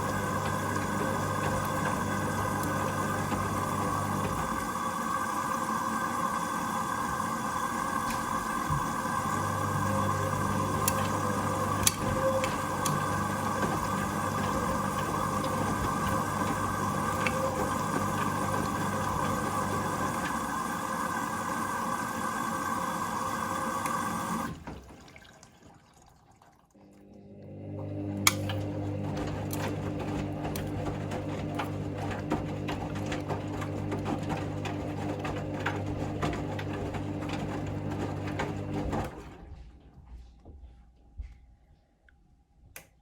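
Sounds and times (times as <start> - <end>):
washing machine drum humming: 0.0 - 25.2, 27.1 - 39.6
water rushing into washing machine: 0.0 - 39.6
washing machine click: 7.8 - 20.5, 28.1 - 38.8.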